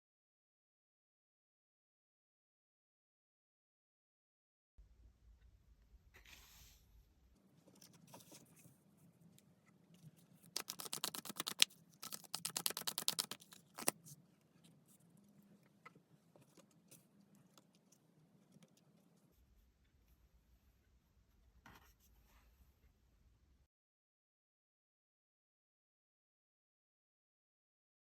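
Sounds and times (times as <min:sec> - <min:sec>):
cards being shuffled: 0:10.4 - 0:14.1
card snap: 0:10.6 - 0:13.9.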